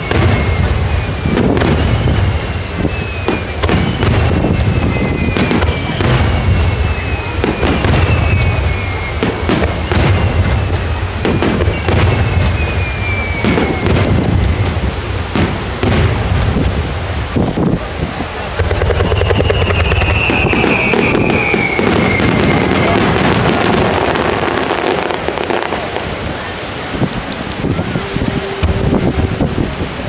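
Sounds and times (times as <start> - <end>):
fireworks bangs and cracks: 0.0 - 30.0
fireworks whistling: 0.0 - 30.0.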